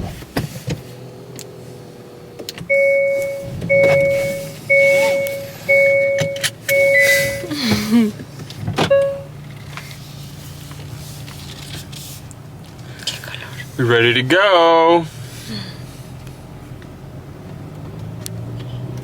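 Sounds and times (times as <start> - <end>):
car warning chime: 2.7 - 7.6, 8.9 - 9.4
low steady hum: 2.7 - 8.2, 8.8 - 9.6.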